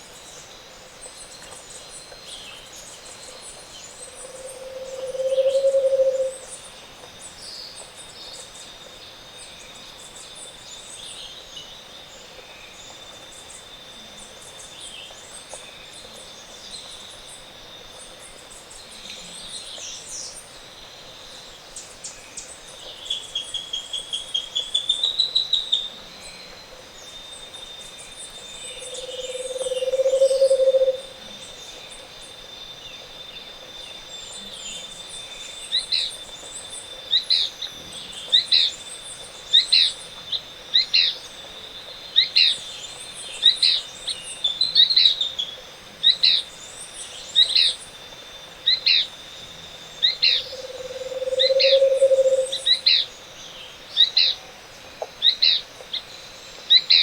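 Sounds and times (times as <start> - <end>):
low hollow bird trill: 4.0 - 6.6, 25.6 - 32.0, 48.6 - 55.6.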